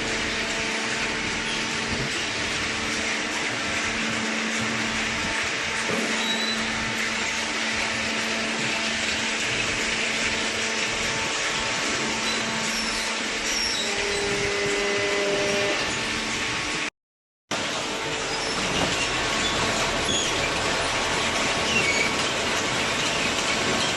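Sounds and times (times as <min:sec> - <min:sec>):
baler machine whirring: 0:00.0 - 0:16.9
higher machine tone: 0:05.8 - 0:09.6.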